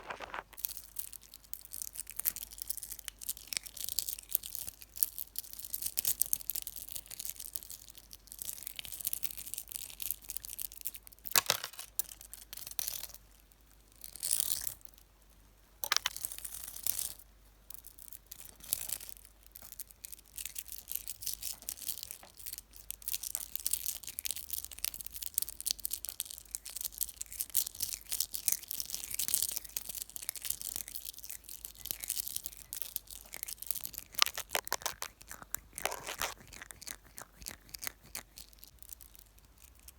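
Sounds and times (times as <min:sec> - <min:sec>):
fingers scratching on microphone: 0:00.0 - 0:00.6, 0:34.2 - 0:38.3.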